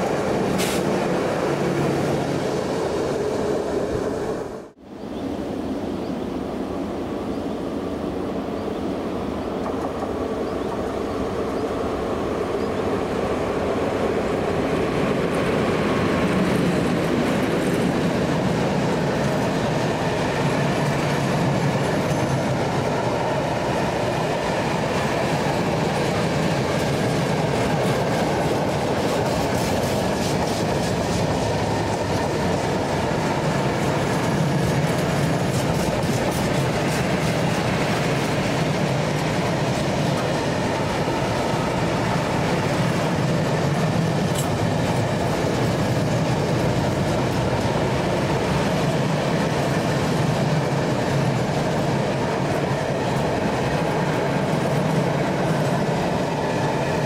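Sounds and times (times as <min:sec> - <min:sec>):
freight train rumbling past: 0:00.0 - 0:57.0
wheels clicking over rail joints: 0:15.4 - 0:57.0.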